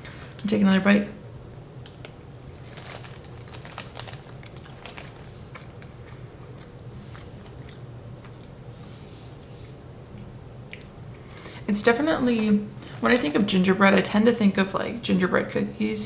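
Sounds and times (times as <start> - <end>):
close-up chewing: 2.4 - 8.5.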